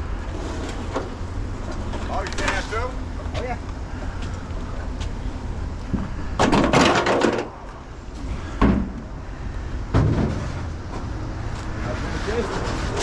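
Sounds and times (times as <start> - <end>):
steady low rumble: 0.0 - 13.0
clatter of hard knocks: 5.9 - 7.5, 9.9 - 10.6.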